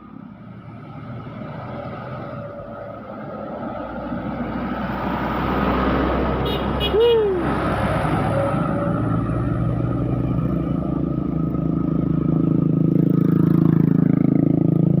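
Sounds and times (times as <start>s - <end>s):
vehicle engine running: 6.5s - 15.0s.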